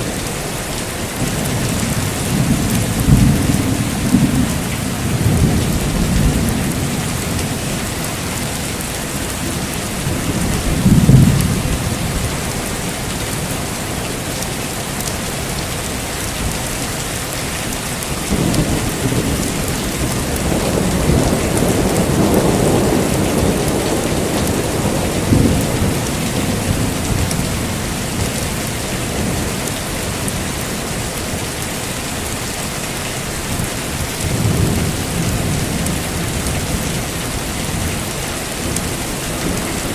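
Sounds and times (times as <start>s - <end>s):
heavy rain: 0.0s - 39.9s
rolling thunder rumble: 0.4s - 13.9s, 18.2s - 30.6s
thunderclap: 18.3s - 27.8s.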